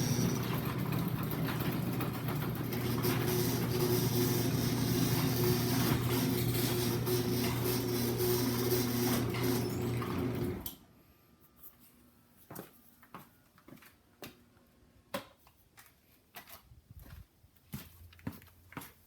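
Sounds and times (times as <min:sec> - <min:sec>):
garage door opener motor humming: 0:00.0 - 0:10.9.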